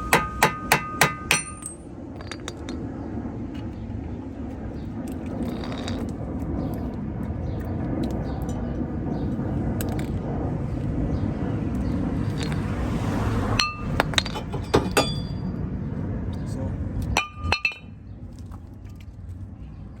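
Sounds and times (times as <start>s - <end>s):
ringing metal strike: 0.0s - 1.9s.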